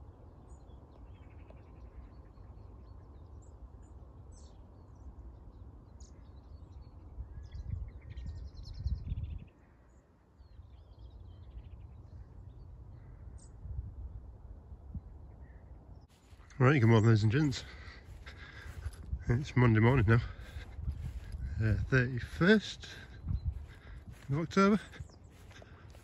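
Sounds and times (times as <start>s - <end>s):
small birds chirping and trilling: 0.0s - 26.0s
low microphone rumble: 16.1s - 26.0s.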